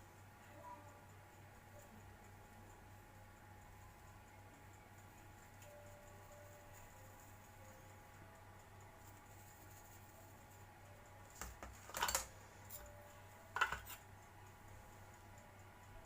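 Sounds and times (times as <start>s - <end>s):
faint steady hum: 0.0s - 16.0s
kitchen utensils clicking: 11.8s - 12.3s, 13.6s - 14.0s.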